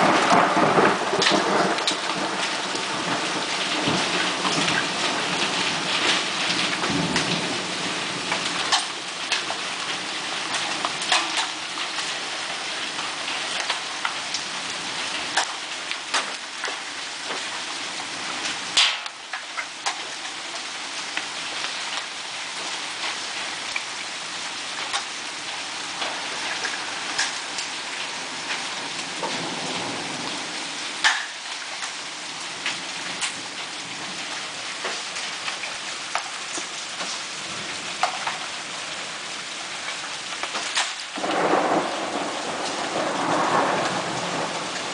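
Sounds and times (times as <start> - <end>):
hailstones striking hard surfaces: 0.0 - 14.2, 15.2 - 17.6, 18.4 - 20.4, 26.0 - 27.7, 31.0 - 32.0, 34.8 - 38.5, 39.8 - 44.9
rain hissing: 0.0 - 44.9.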